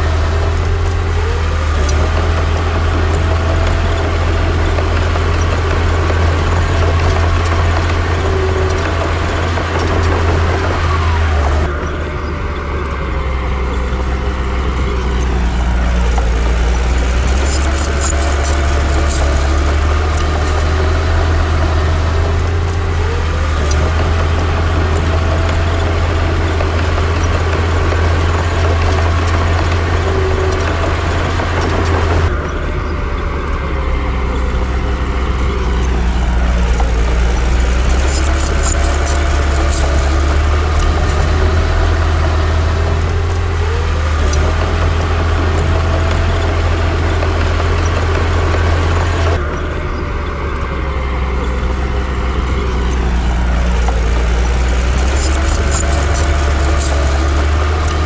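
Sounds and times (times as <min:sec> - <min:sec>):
heavy diesel engine droning: 0:00.0 - 0:58.0
short metallic clanks: 0:53.6 - 0:58.0.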